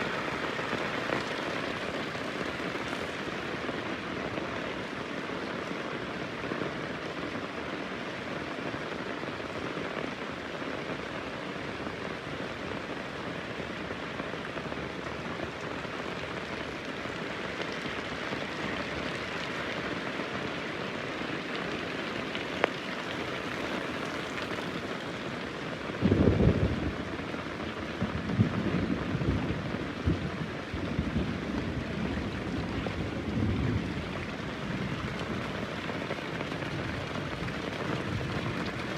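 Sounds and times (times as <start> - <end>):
heavy rain falling: 0.0 - 38.9
thunder clap and rumble: 26.0 - 38.9.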